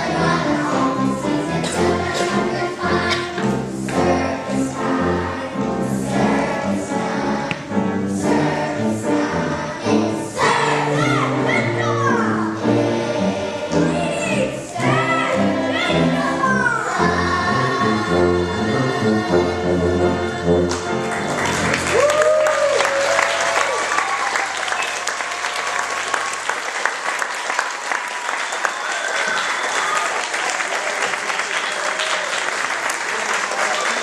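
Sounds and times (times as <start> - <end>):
group of voices singing: 0.0 - 21.1.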